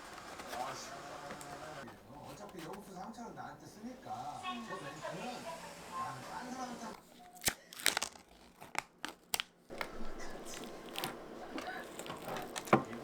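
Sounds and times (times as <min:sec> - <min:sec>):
objects being handled clicking: 0:07.8 - 0:13.0.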